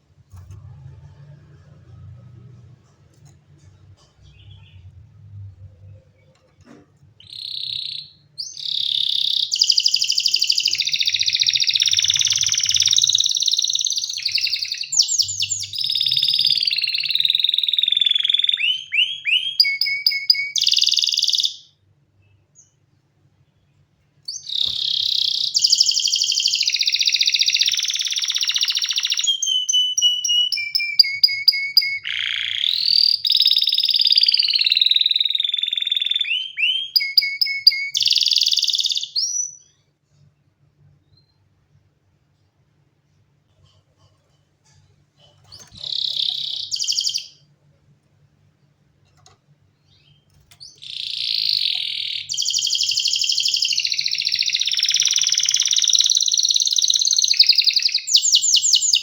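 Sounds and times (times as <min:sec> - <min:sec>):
canary singing trills: 0:07.2 - 0:22.8, 0:24.2 - 0:39.7, 0:45.3 - 0:47.5, 0:49.8 - 0:59.0.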